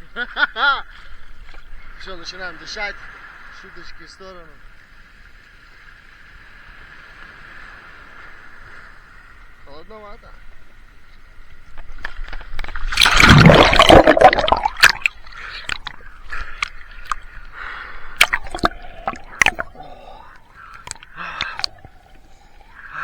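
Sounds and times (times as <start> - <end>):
seawater splashing: 12.5 - 23.0.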